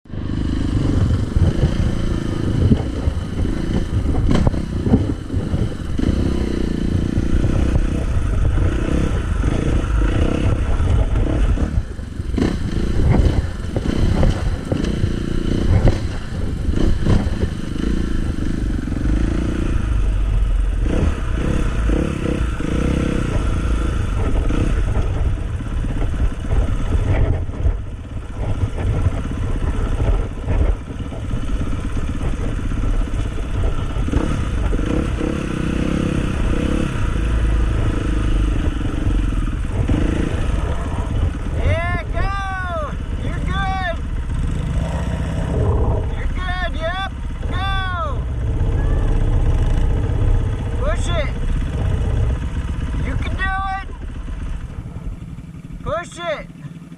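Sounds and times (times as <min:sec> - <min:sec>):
dirt bike engine revving: 0:00.1 - 0:56.9
bike clatter over rough ground: 0:08.0 - 0:18.0, 0:24.2 - 0:35.4.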